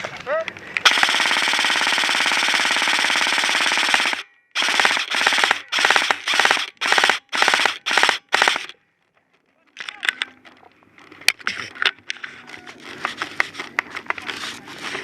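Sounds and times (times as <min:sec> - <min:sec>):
airsoft rifle firing bursts: 0:00.8 - 0:08.8.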